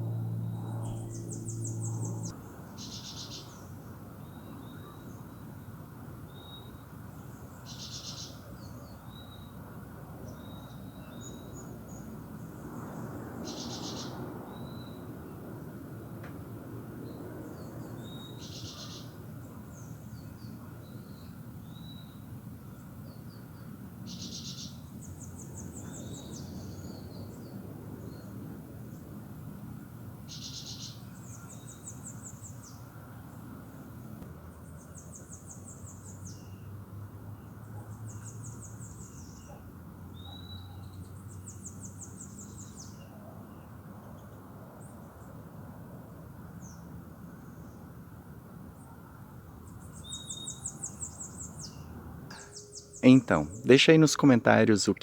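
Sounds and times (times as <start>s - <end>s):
low background rumble: 0.0s - 2.4s
birds singing and calling: 0.4s - 5.2s.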